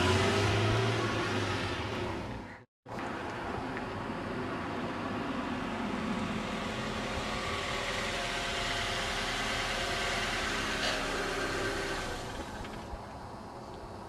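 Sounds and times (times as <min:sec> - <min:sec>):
car engine idling: 0:05.4 - 0:13.7.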